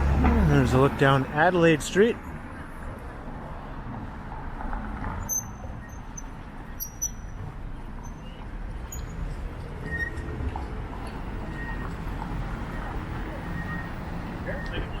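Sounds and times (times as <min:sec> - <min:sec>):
traffic rumble: 0:00.0 - 0:15.0
high-pitched squeaks: 0:05.2 - 0:07.4.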